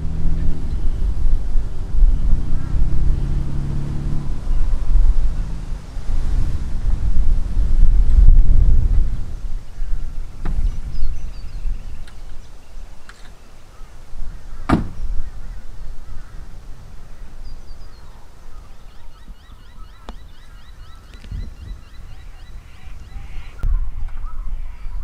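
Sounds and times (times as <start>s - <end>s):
bird chirping: 0.0s - 3.0s, 9.4s - 25.0s
wind buffeting microphone: 0.0s - 25.0s
sharp knock: 14.7s - 15.0s.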